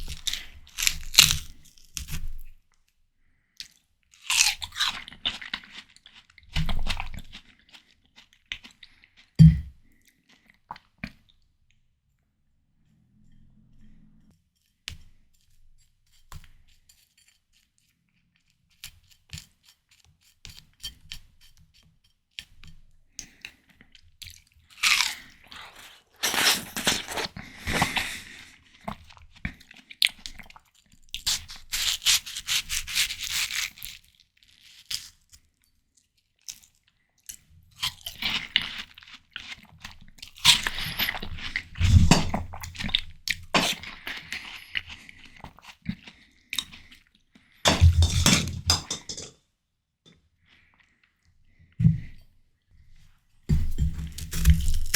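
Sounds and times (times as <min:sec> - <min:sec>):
wet chewing: 0:00.0 - 0:02.1, 0:23.2 - 0:34.1, 0:54.1 - 0:54.9
crisp juicy bites: 0:00.0 - 0:02.2, 0:24.7 - 0:28.4, 0:31.1 - 0:35.1, 0:54.1 - 0:54.9.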